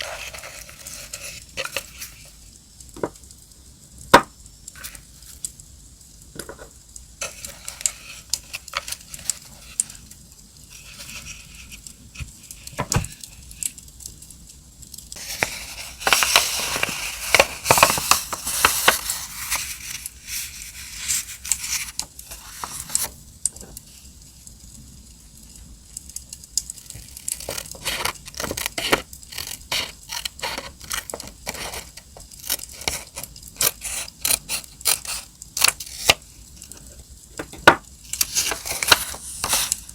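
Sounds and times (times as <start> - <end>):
paper rustling and crinkling: 0.0 - 2.4, 7.2 - 13.7, 15.2 - 24.0, 26.9 - 39.9.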